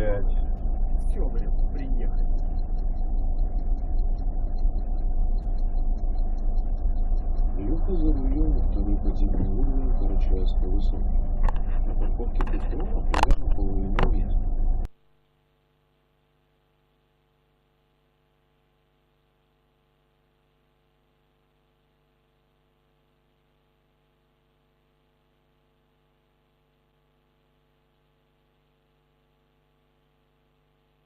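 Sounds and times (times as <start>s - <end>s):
loud clip audio: 0.0s - 14.9s
faint electrical hum: 0.0s - 31.0s.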